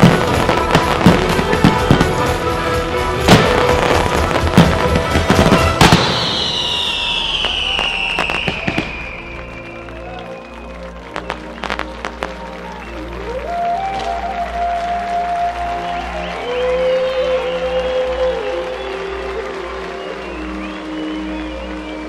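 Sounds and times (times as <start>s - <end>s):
long falling high tone: 0.0s - 11.0s
fireworks bursting: 0.0s - 16.0s
music from sound system: 0.0s - 22.0s.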